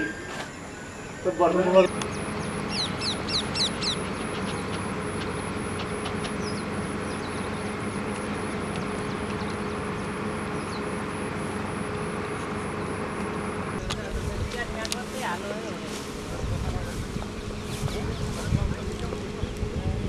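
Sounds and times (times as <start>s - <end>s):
high falling bird chirps: 0.0s - 11.4s
outdoor noise: 0.0s - 20.0s.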